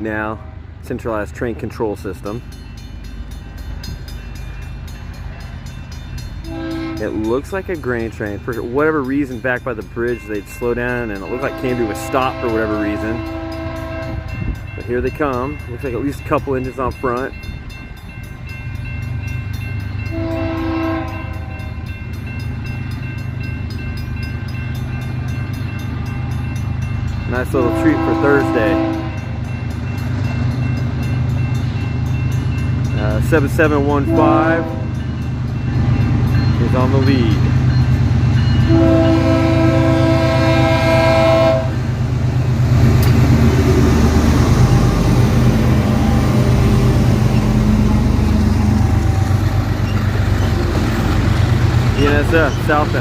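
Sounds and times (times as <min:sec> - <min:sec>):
diesel locomotive engine rumble: 0:00.0 - 0:53.0
train horn blast: 0:06.4 - 0:07.2, 0:11.3 - 0:14.5, 0:20.1 - 0:21.6, 0:27.6 - 0:29.3, 0:34.0 - 0:35.0, 0:38.6 - 0:41.8.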